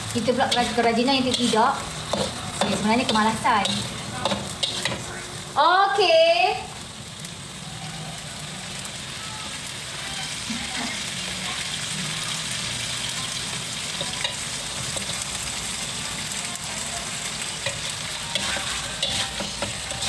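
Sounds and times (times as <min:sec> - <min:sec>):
metal spatula scraping wok: 0:00.0 - 0:05.2, 0:16.8 - 0:20.0
meat sizzling in a wok: 0:00.0 - 0:20.0.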